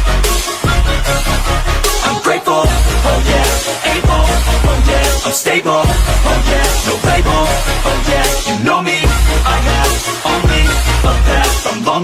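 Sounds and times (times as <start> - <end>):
hip hop beat with heavy bass: 0.0 - 12.0
person rapping: 1.9 - 12.0.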